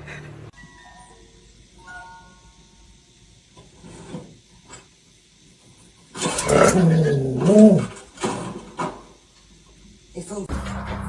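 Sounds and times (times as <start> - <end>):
animal yowling: 6.3 - 8.0.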